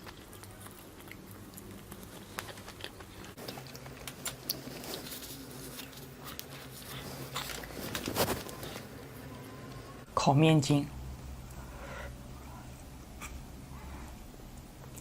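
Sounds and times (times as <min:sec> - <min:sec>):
person chewing and crunching food: 0:00.0 - 0:09.0
faint low hum: 0:00.0 - 0:15.0.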